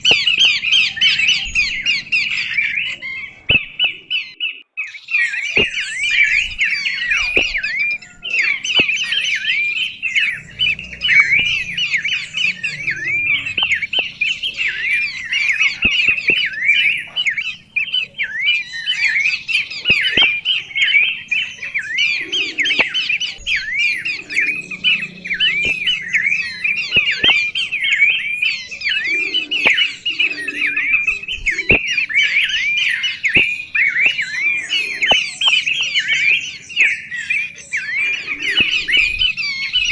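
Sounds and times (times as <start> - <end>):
songbird chirping: 0.0 - 39.9
faint clicks: 5.6 - 18.6.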